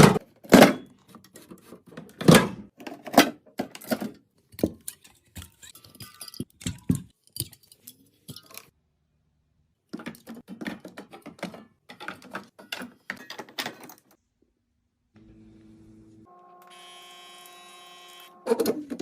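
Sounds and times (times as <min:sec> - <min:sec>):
small motor whirring: 0:15.2 - 0:18.6.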